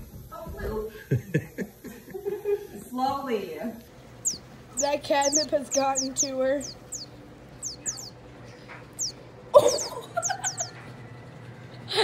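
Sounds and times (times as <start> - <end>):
small bird chirping: 3.8 - 10.9.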